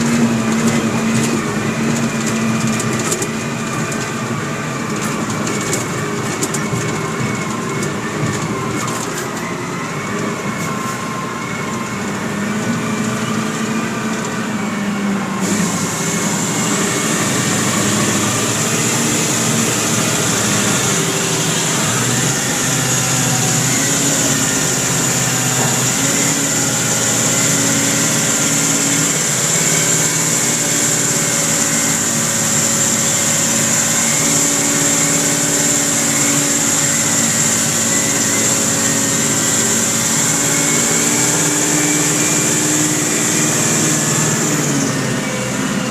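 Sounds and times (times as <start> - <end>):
haul truck diesel engine: 0.0 - 45.9.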